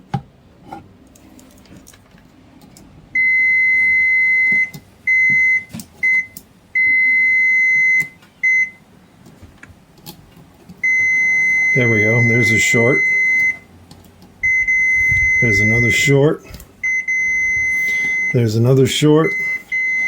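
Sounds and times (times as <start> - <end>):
multimeter continuity beeps: 3.2 - 8.8, 10.8 - 13.7, 14.4 - 16.2, 16.8 - 18.6, 19.2 - 20.0.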